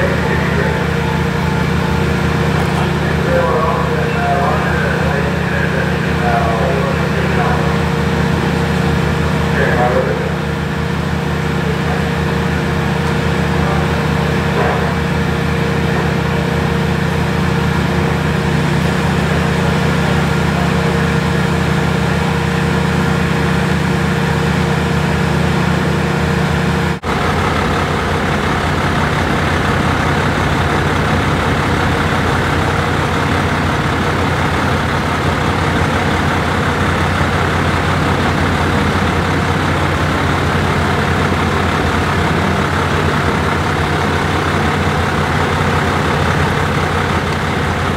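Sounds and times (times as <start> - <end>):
heavy engine idling: 0.0 - 47.9.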